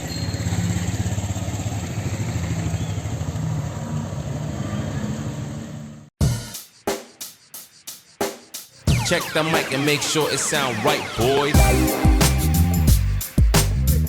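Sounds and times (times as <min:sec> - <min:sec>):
vehicle engine running: 0:00.0 - 0:04.6, 0:11.0 - 0:14.0
music with drum beat: 0:06.2 - 0:14.0.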